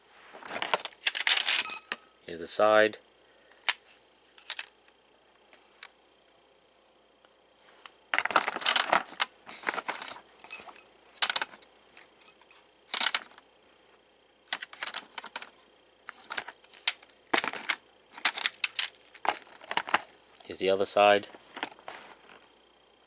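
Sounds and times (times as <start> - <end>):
small metal clinks and rattles: 0.9 - 2.1, 8.2 - 13.4.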